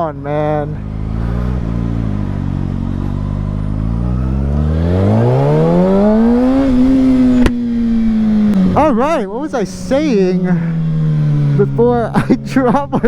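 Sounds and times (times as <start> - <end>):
motorcycle engine accelerating: 0.0 - 13.0
sharp click: 7.4 - 7.6.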